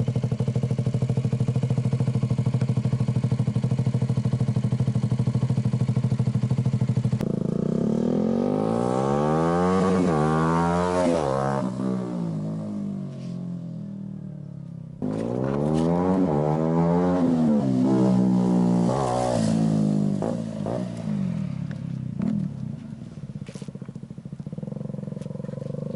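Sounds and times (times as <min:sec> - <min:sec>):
motorcycle engine idling: 0:00.0 - 0:09.2, 0:11.7 - 0:15.3, 0:20.0 - 0:25.9
motorcycle riding past: 0:00.0 - 0:25.9.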